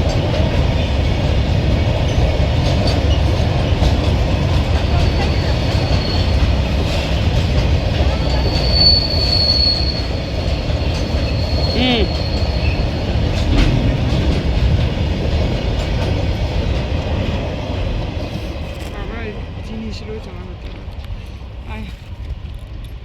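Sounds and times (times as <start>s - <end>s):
train wagons rumbling past: 0.0s - 23.0s
high wheel squeal: 5.2s - 6.6s, 8.2s - 13.0s.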